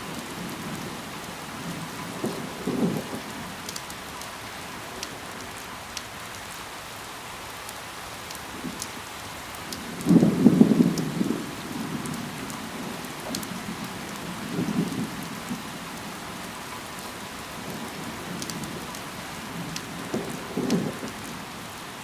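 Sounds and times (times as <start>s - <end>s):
raindrops ticking: 0.0s - 21.9s
steady rain: 0.0s - 22.0s.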